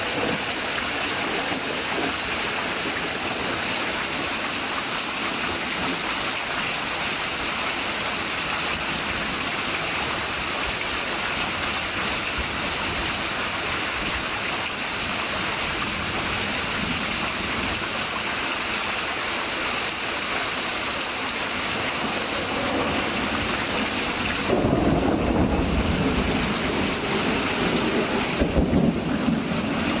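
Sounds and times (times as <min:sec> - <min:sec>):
heavy rain pouring: 0:00.0 - 0:30.0
deep thunder rumble: 0:21.8 - 0:30.0.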